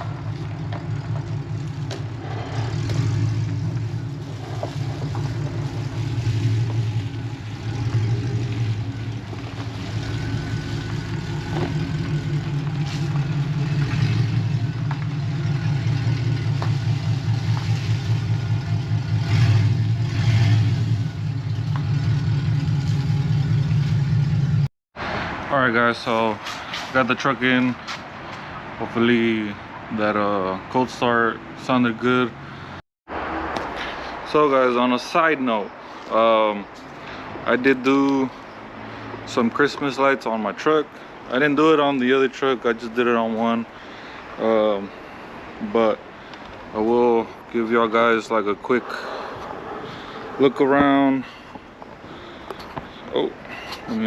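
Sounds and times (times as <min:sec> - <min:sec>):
truck engine running: 0:00.0 - 0:24.7.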